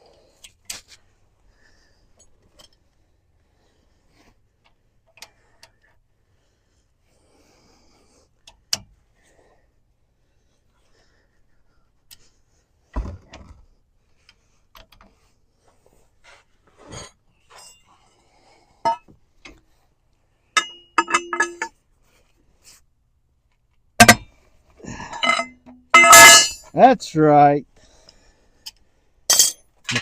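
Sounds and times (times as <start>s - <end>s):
metal hand tools clinking: 20.6s - 21.7s, 24.9s - 26.8s, 29.3s - 30.0s
loud sharp metal clank: 26.0s - 26.7s.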